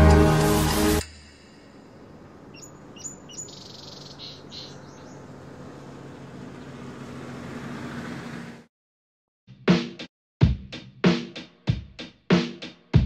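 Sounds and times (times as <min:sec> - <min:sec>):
background music: 0:00.0 - 0:01.5
high bird chirps: 0:02.4 - 0:05.4.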